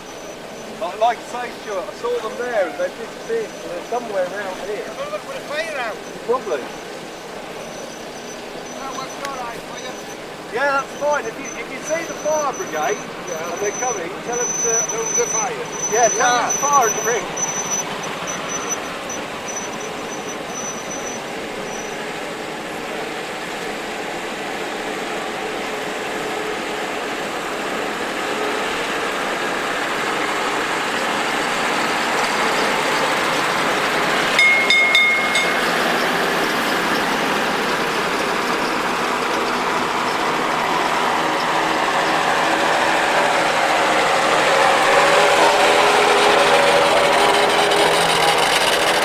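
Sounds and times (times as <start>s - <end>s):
vehicle engine running: 0.0s - 49.0s
short high-pitched beep: 34.4s - 36.0s.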